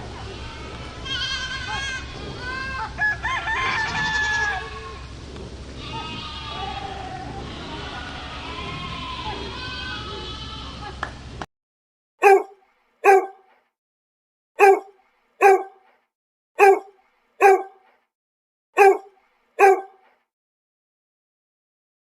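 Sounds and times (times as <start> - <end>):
dog barking: 12.2 - 13.5, 14.6 - 15.9, 16.6 - 17.9, 18.8 - 20.0.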